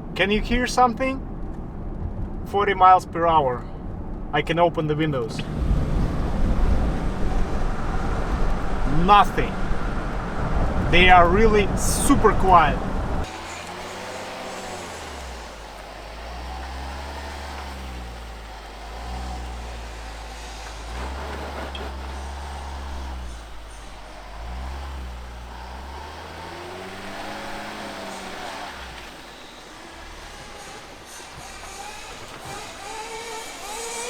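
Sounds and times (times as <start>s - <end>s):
car engine: 0.0s - 34.0s
road rumble: 0.0s - 34.0s
person talking: 8.9s - 9.6s, 10.9s - 12.8s.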